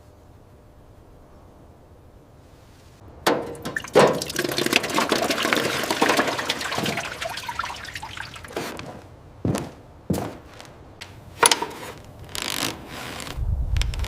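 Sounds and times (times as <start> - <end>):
sharp knocks: 3.2 - 7.1
liquid splashing and trickling: 3.3 - 9.0
small crackles: 11.9 - 14.0.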